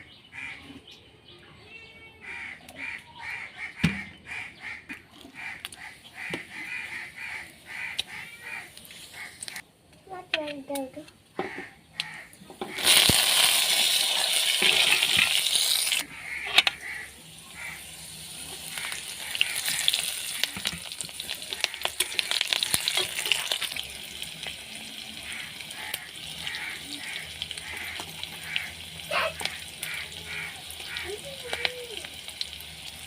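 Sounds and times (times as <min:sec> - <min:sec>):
spoon scraping a pan: 0:12.6 - 0:16.9, 0:18.5 - 0:23.8
food sizzling in hot oil: 0:12.6 - 0:33.0.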